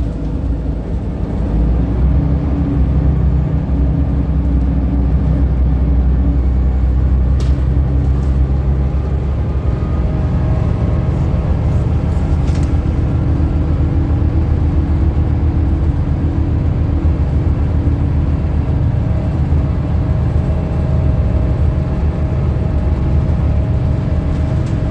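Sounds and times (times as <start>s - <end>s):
bus engine rumbling: 0.0s - 24.9s.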